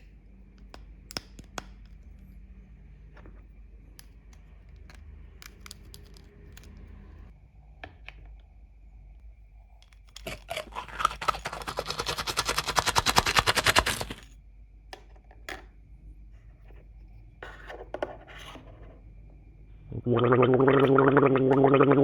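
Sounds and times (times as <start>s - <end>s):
plastic toy parts clicking: 4.7s - 6.8s, 10.2s - 14.2s.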